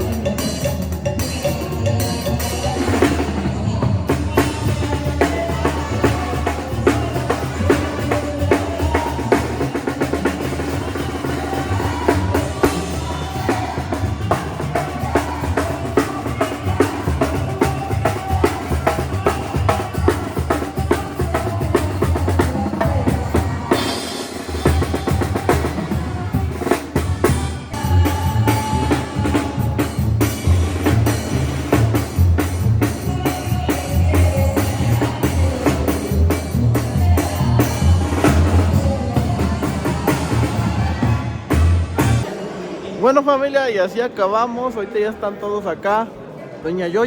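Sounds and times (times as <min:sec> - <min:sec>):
banda music: 0:00.0 - 0:44.2
deep bass line: 0:24.7 - 0:42.3.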